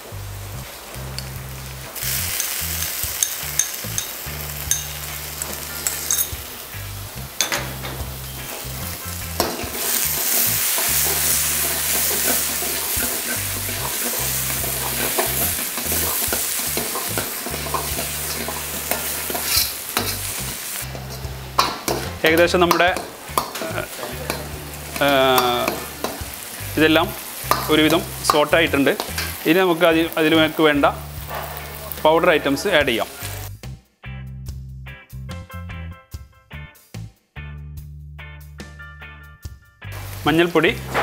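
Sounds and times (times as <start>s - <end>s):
vegetables sizzling in hot oil: 0.0s - 33.6s, 39.9s - 41.0s
ladle scraping and clinking on pan: 2.3s - 6.4s, 9.4s - 24.5s.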